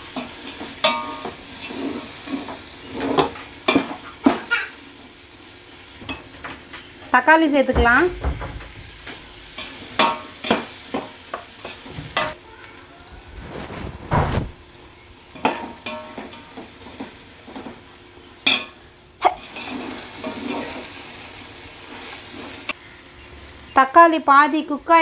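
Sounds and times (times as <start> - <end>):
tomatoes sizzling in oil: 0.0 - 13.5, 14.4 - 25.0
metal spatula scraping a pot: 0.5 - 3.4, 19.5 - 20.9.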